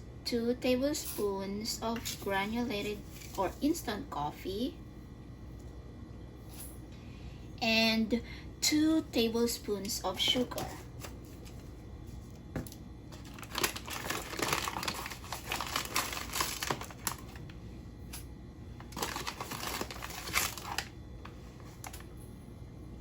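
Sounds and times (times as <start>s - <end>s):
crinkly rustling: 2.8s - 3.7s, 13.1s - 17.6s, 18.8s - 22.1s.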